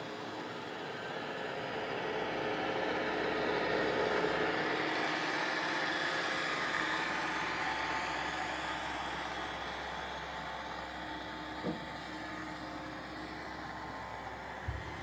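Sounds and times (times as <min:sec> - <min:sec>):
short knocks: 0:11.6 - 0:11.9.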